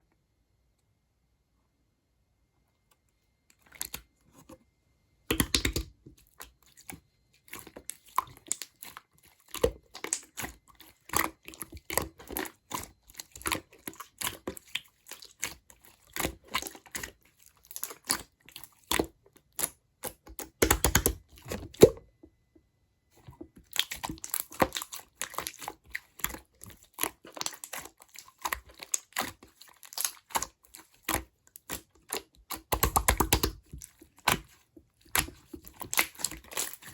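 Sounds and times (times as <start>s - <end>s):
slime squished by hand: 23.6s - 36.9s.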